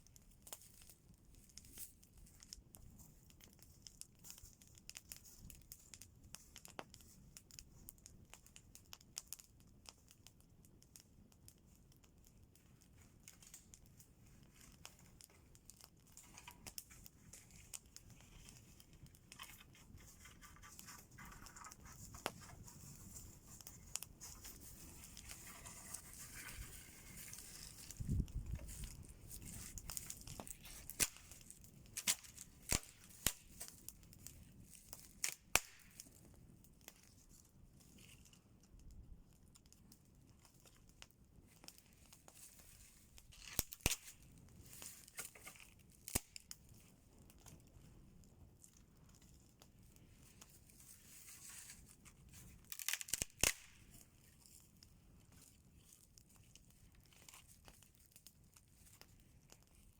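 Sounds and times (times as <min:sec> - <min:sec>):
campfire crackling: 0:00.0 - 0:59.9
rustling: 0:14.2 - 0:33.9.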